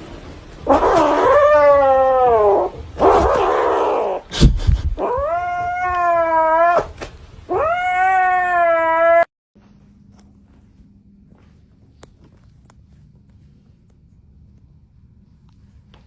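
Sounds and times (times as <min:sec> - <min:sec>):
cat yowling: 0:00.7 - 0:04.2, 0:05.0 - 0:09.3.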